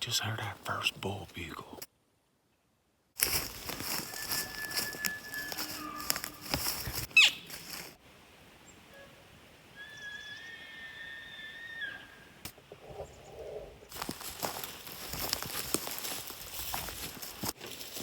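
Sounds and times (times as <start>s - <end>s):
rustling handling noise: 3.2s - 8.0s, 13.9s - 18.0s
elk bugling whistle: 4.0s - 6.5s, 9.8s - 12.2s.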